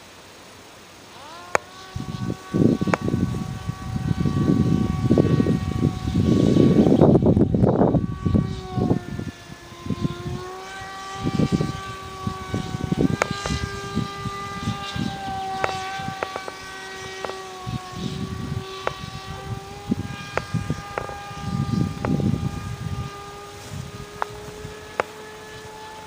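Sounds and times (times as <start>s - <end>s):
airplane propeller whine: 0.0s - 26.0s
wind buffeting microphone: 1.2s - 26.0s
sharp clicks: 13.1s - 13.7s, 14.8s - 17.4s, 18.8s - 22.5s, 24.1s - 25.5s.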